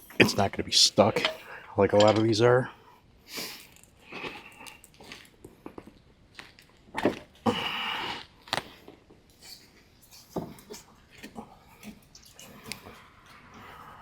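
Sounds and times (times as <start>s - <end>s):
metal tool clicks and knocks: 2.0s - 2.3s.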